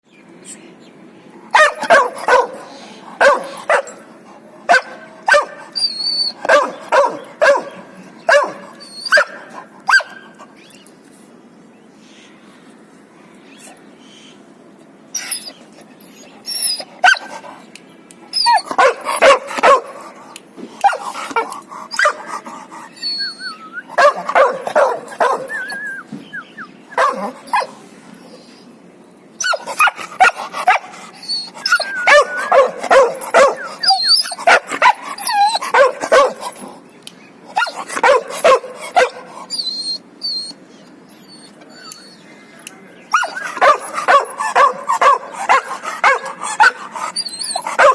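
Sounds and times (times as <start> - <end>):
dogs barking: 1.5 - 4.1, 4.7 - 10.5, 16.8 - 17.6, 18.4 - 26.0, 26.9 - 27.8, 29.4 - 36.8, 37.5 - 40.6, 43.1 - 47.9.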